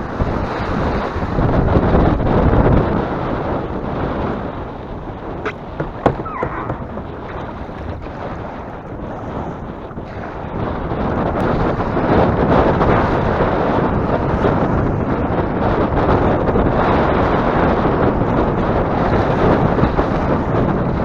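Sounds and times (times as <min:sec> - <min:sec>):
wind buffeting microphone: 0:00.0 - 0:21.0
sharp knocks: 0:05.4 - 0:07.5.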